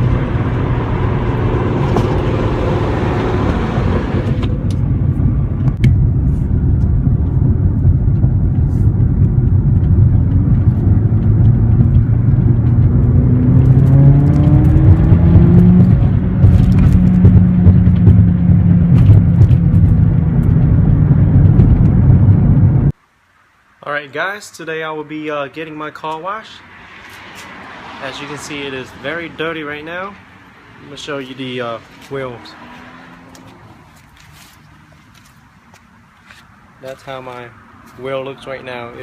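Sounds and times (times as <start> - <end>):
car engine and exhaust: 0.0 - 23.0, 26.6 - 39.0.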